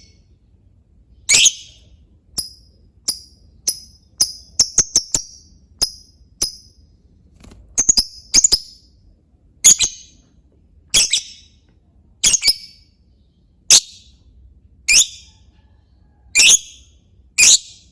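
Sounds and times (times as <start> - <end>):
lovebird high chirps: 1.2 - 6.8, 7.8 - 8.9, 9.6 - 10.2, 11.0 - 11.6, 12.2 - 12.8, 13.7 - 14.2, 14.9 - 15.3, 16.4 - 17.9.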